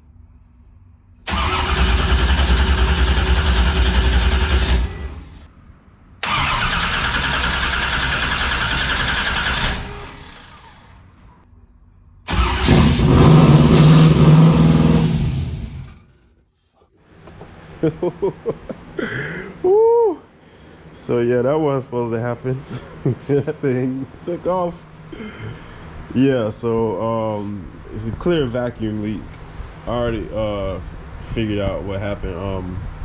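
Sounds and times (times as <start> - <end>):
engine revving: 1.3 - 5.5, 6.2 - 10.9, 12.3 - 16.1.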